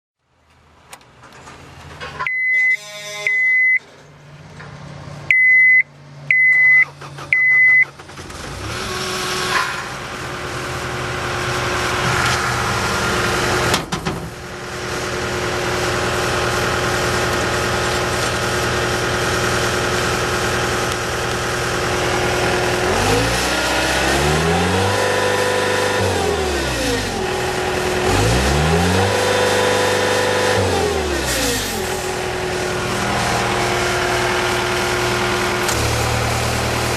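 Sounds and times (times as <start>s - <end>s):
diesel engine starting and idling: 0.6s - 36.9s
warning beeps: 2.3s - 3.9s, 5.3s - 7.9s
engine revving: 4.9s - 36.9s.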